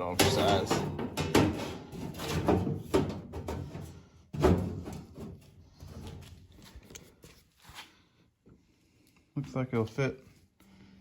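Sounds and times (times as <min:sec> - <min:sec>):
sheet metal knocks and rattles: 0:00.0 - 0:05.3.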